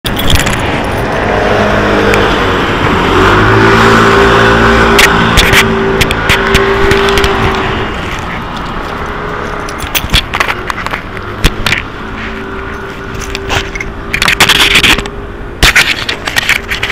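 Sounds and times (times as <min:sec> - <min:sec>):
sharp clicks and rattles: 0:00.0 - 0:01.4, 0:04.9 - 0:16.9
bus engine accelerating: 0:00.4 - 0:14.2.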